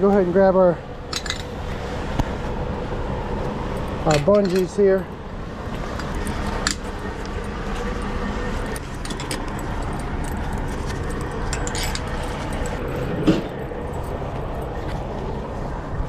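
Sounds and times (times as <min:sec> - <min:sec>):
steady low rumble: 0:00.0 - 0:16.0
metal hooks clinking and jangling: 0:01.1 - 0:01.6, 0:03.7 - 0:14.9.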